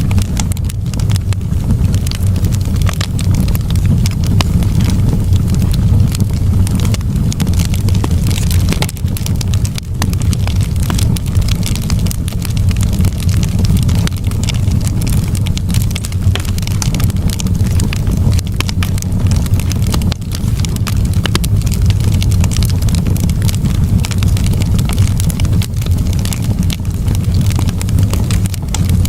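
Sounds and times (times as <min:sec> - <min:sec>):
campfire crackling: 0:00.0 - 0:29.0.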